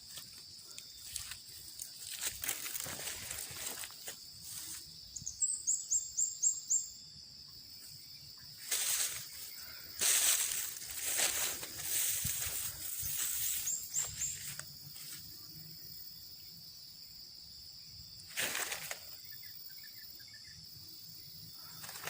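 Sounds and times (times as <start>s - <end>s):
rustling through vegetation: 0.0s - 5.0s, 8.6s - 15.4s, 18.2s - 19.3s, 21.6s - 22.0s
high-pitched insect drone: 0.0s - 22.0s
faint bird chirps: 5.0s - 10.8s, 11.4s - 14.6s.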